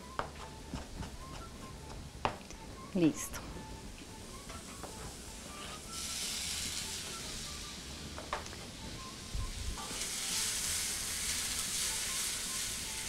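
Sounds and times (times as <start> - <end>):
vegetables sizzling in oil: 4.3 - 13.0.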